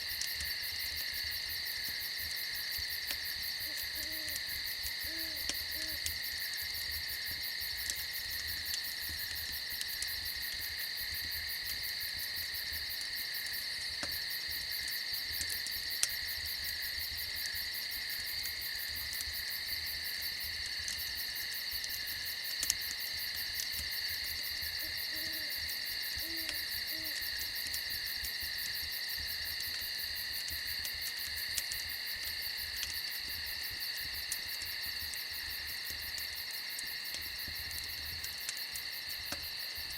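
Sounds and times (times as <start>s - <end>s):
crickets and insects trilling: 0.0s - 39.9s
fire crackling and popping: 0.0s - 39.9s
owl hooting: 3.6s - 4.4s, 5.1s - 6.0s, 24.8s - 25.5s, 26.2s - 27.2s.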